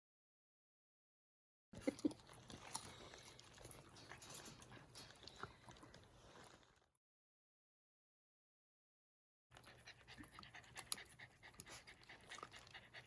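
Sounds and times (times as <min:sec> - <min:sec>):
faint chewing: 0:01.8 - 0:07.0, 0:09.5 - 0:13.0.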